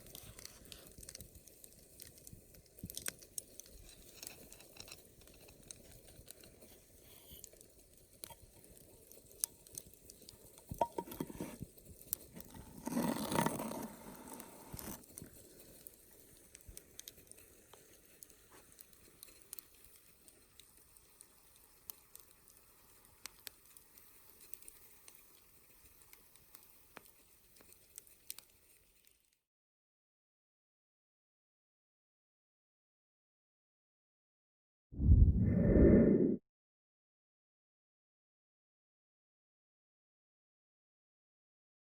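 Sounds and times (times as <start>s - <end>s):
campfire crackling and popping: 0.0s - 29.2s
rushing swell: 35.0s - 36.4s.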